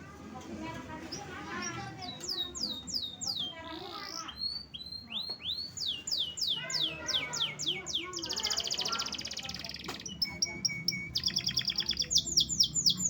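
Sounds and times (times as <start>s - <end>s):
canary singing: 0.9s - 13.0s.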